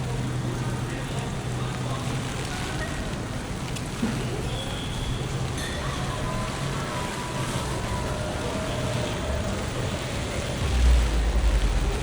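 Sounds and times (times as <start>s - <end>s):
city street noise: 0.0s - 12.0s
steady rain: 0.0s - 12.0s.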